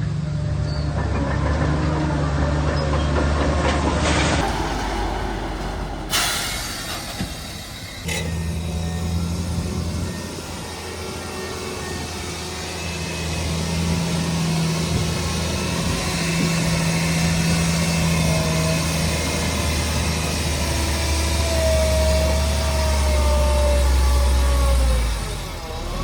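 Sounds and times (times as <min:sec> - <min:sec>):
bulldozer diesel engine running: 0:00.1 - 0:26.0
short high squeal: 0:04.4 - 0:10.4.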